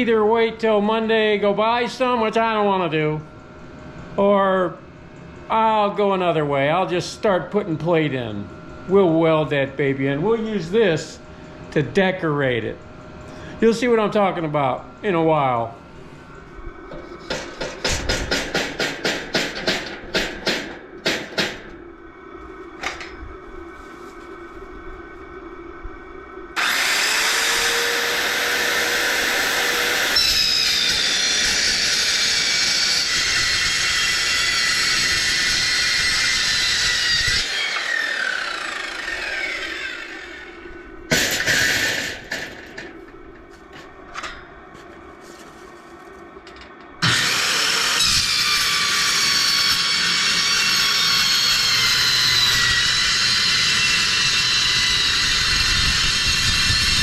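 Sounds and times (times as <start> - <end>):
abrasive wheel cutting steel: 26.6 - 43.1, 47.0 - 57.0.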